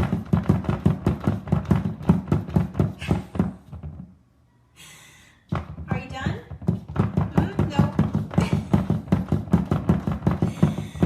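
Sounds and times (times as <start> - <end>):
rapid thumps: 0.0 - 4.2, 5.5 - 11.0.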